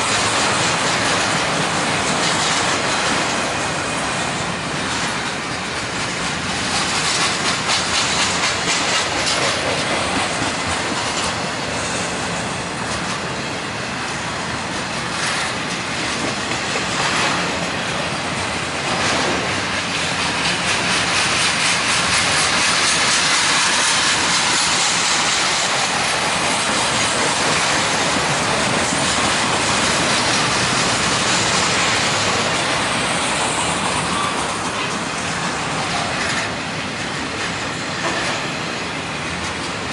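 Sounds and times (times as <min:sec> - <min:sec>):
clickety-clack of wheels over rail: 0:00.0 - 0:39.9
train wheels rushing on rails: 0:00.0 - 0:39.9.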